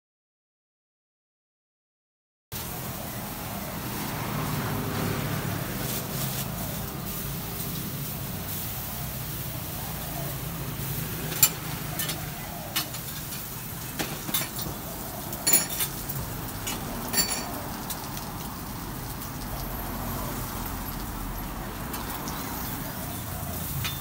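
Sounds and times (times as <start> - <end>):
food sizzling on a griddle: 2.6 - 24.0
metal spatula clinking on pan: 15.4 - 18.0.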